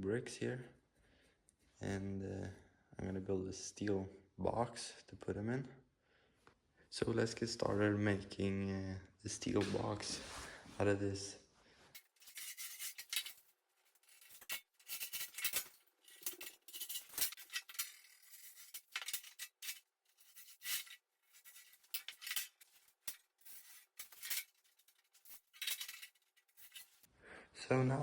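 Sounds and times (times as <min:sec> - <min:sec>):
marking tool scratching metal: 0:14.0 - 0:27.1.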